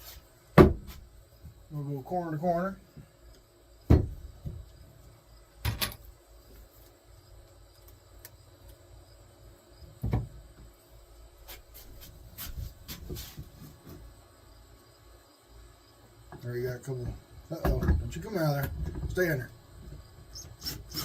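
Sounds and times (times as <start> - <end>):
wooden boards knocking: 0.6 - 0.9.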